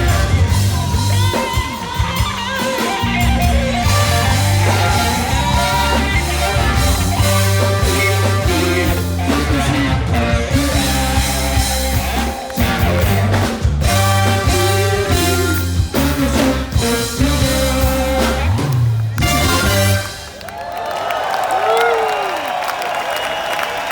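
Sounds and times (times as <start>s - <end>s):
heavy bass line: 0.0s - 20.1s
funk band playing: 0.0s - 20.5s
person singing: 3.8s - 18.7s.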